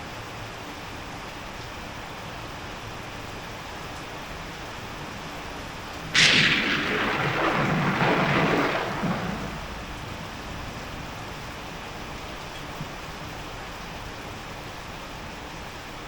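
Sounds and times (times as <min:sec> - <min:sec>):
steady rain: 0:00.0 - 0:16.0
thunderclap rumbling: 0:05.7 - 0:13.0.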